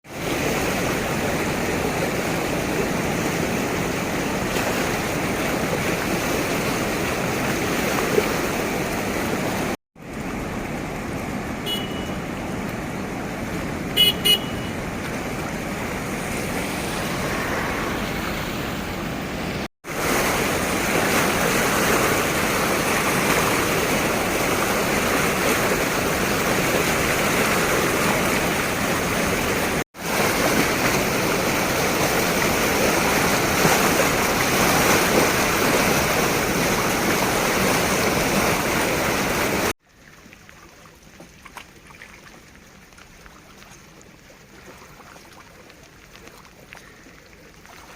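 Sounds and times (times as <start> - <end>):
floodwater rushing from spillway: 0.0 - 47.9
vehicle horn toots: 11.6 - 12.4, 14.0 - 14.9.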